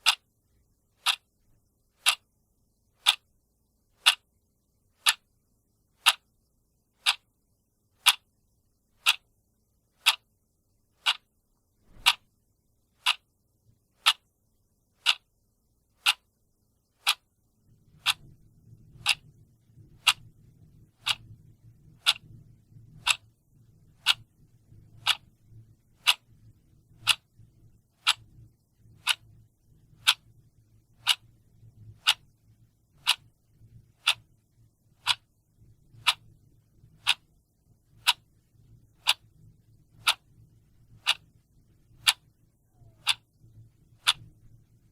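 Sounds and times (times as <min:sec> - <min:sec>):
clock ticking: 0:00.0 - 0:00.2, 0:01.0 - 0:01.3, 0:02.0 - 0:02.3, 0:03.0 - 0:03.3, 0:04.0 - 0:04.3, 0:05.0 - 0:05.3, 0:06.0 - 0:06.3, 0:07.0 - 0:07.3, 0:08.0 - 0:08.3, 0:09.0 - 0:09.3, 0:10.0 - 0:10.3, 0:11.0 - 0:11.3, 0:11.9 - 0:12.3, 0:13.0 - 0:13.3, 0:14.0 - 0:14.3, 0:15.0 - 0:15.3, 0:16.0 - 0:17.3, 0:17.9 - 0:19.3, 0:19.9 - 0:20.3, 0:20.9 - 0:22.4, 0:23.0 - 0:23.3, 0:24.0 - 0:24.3, 0:24.9 - 0:25.4, 0:26.0 - 0:27.4, 0:28.0 - 0:28.4, 0:29.0 - 0:29.4, 0:30.0 - 0:31.4, 0:32.0 - 0:32.4, 0:33.0 - 0:33.4, 0:34.0 - 0:34.4, 0:35.0 - 0:36.4, 0:37.0 - 0:37.3, 0:38.0 - 0:38.3, 0:38.9 - 0:39.4, 0:40.0 - 0:44.6
faint low hum: 0:00.0 - 0:44.9.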